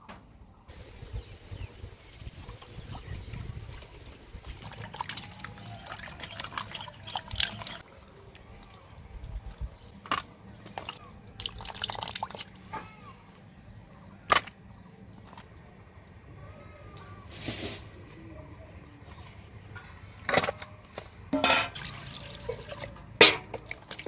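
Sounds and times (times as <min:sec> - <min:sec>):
fish washed in water splashing: 0:04.6 - 0:09.2, 0:10.1 - 0:12.6.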